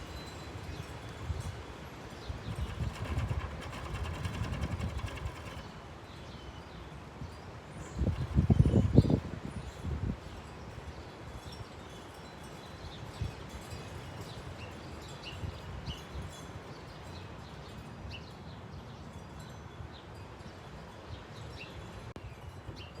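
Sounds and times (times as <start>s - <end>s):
wind buffeting microphone: 0.6s - 5.7s, 7.8s - 10.4s.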